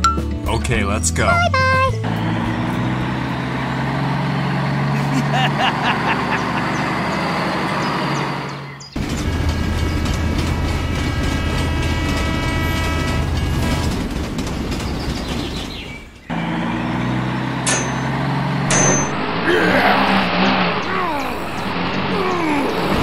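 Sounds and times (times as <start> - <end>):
tractor engine running: 1.0 - 19.5
train rumble: 1.9 - 23.0
train horn: 9.0 - 13.9
high squeaky glides: 16.4 - 23.0.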